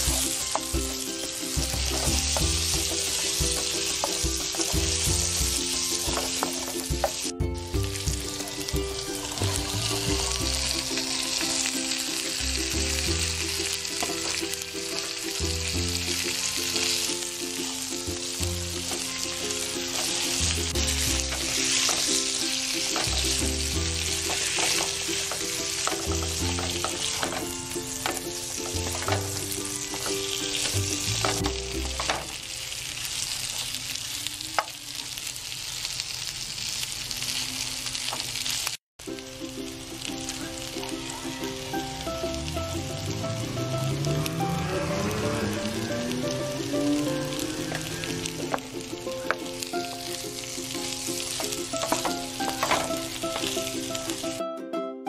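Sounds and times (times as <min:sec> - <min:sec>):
background music: 0:00.0 - 0:32.4, 0:39.0 - 0:55.0
liver and onions sizzling in oil: 0:00.0 - 0:54.4
spatula scraping a pan: 0:18.9 - 0:32.3.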